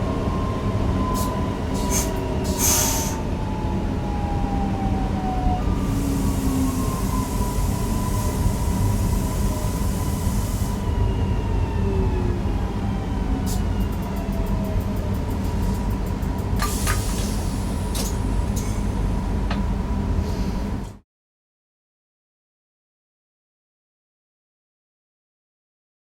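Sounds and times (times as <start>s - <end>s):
electric train rumble: 0.0s - 21.0s
train motor whine: 5.6s - 20.1s.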